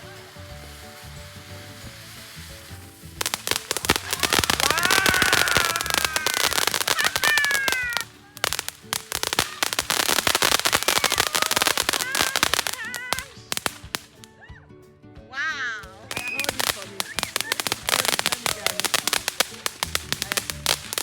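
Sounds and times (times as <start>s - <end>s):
fireworks crackling pops: 0.0s - 14.3s, 15.8s - 21.0s
high whistling tones: 16.1s - 17.6s.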